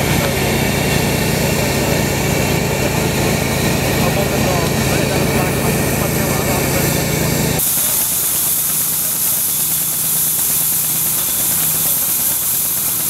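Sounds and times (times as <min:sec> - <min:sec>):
deep engine sound: 0:00.0 - 0:11.6
engine running: 0:00.0 - 0:13.0
loud hiss: 0:07.6 - 0:13.0.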